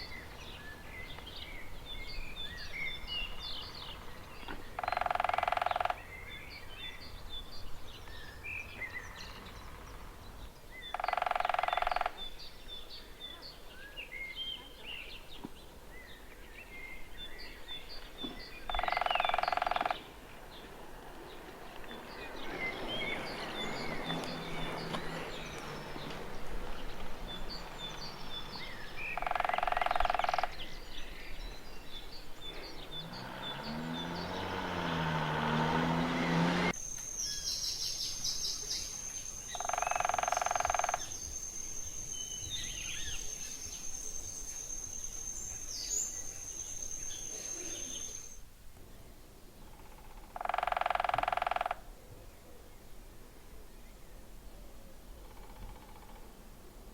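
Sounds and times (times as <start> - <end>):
birds chirping: 0.0 - 48.4
woodpecker drumming on wood: 4.5 - 6.1, 10.9 - 12.3, 18.7 - 20.1, 29.0 - 30.7, 39.5 - 41.1, 50.0 - 51.9.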